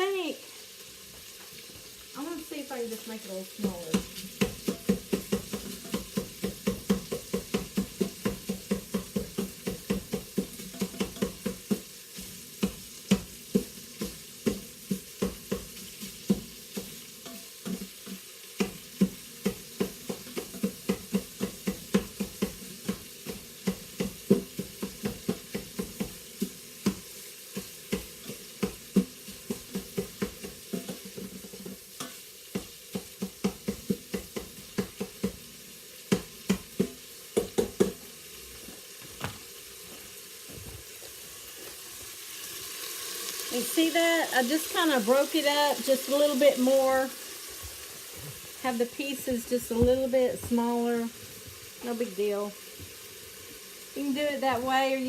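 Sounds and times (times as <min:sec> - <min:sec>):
chicken sizzling in oil: 0:00.0 - 0:55.0
meat chopper striking pot bottom: 0:03.9 - 0:11.8.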